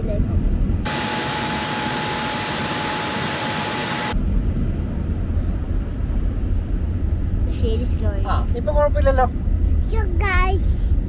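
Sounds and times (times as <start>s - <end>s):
low steady rumble: 0.0s - 11.0s
air dryers blowing: 0.9s - 4.2s.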